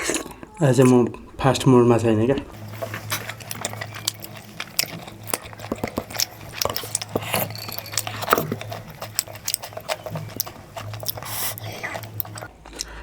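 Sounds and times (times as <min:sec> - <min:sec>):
food chewing with clicks and smacks: 0:00.0 - 0:01.6, 0:02.3 - 0:13.0
steady low hum: 0:00.0 - 0:13.0.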